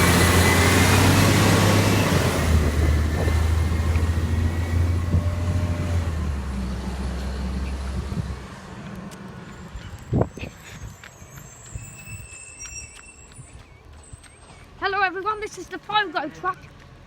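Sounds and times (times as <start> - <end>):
garbage truck engine humming: 0.0 - 10.0.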